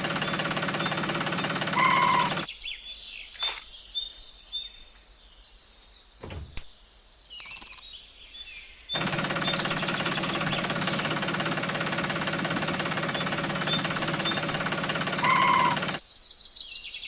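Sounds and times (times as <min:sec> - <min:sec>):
mini tractor motor running: 0:00.0 - 0:02.5, 0:09.0 - 0:16.0
birds chirping: 0:00.0 - 0:17.0.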